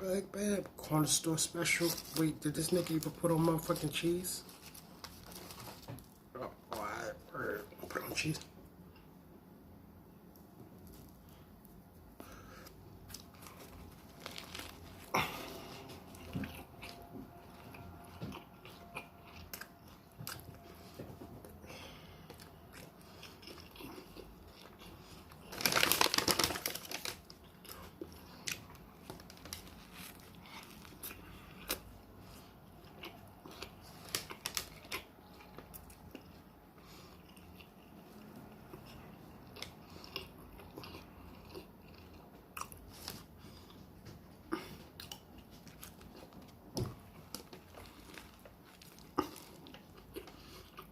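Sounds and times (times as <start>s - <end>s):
chewing a sandwich: 10.2s - 50.9s.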